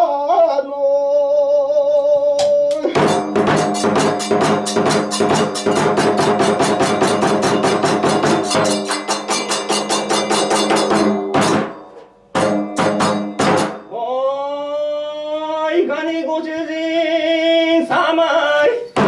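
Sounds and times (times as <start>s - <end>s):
drums beating fast rhythm: 2.4s - 14.0s
hand cymbals: 2.4s - 14.0s
ringing metallic tones: 2.9s - 14.0s.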